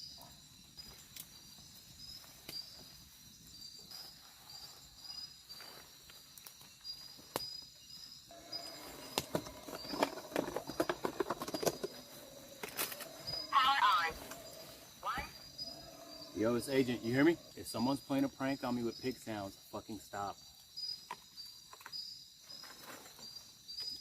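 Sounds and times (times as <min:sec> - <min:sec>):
night insects chirping: 0:00.0 - 0:24.0
howler monkey calling: 0:08.3 - 0:10.2, 0:11.9 - 0:17.8.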